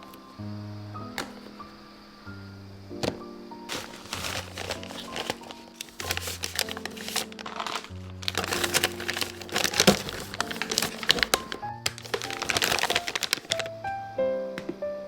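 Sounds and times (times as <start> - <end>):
soft background music: 0.0 - 15.0
plastic crinkling and clicking: 3.0 - 13.7.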